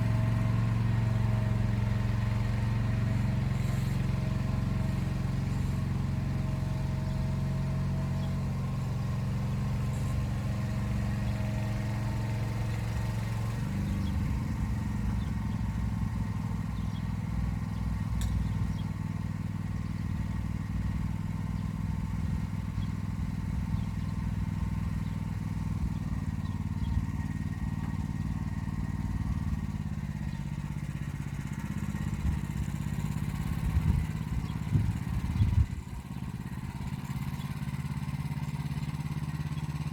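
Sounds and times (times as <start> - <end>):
tractor engine running under load: 0.0 - 39.9.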